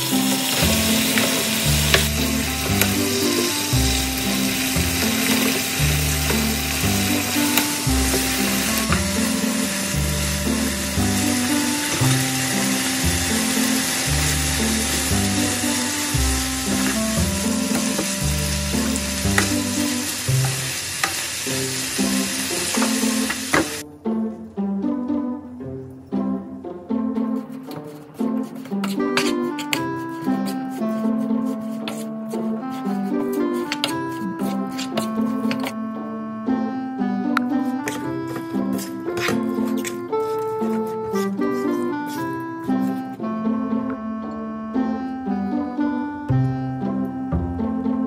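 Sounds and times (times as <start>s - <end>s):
vegetables sizzling in a frying pan: 0.0s - 23.8s
wooden spatula scraping pan: 0.1s - 21.2s, 27.2s - 35.8s, 37.6s - 43.1s
spatula knocking on pan: 0.6s - 9.5s.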